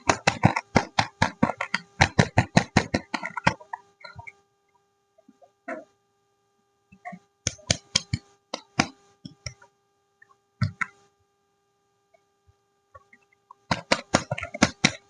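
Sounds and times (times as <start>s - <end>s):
soap bars tapping and clicking: 0.0s - 4.2s, 7.5s - 9.6s, 13.7s - 15.0s.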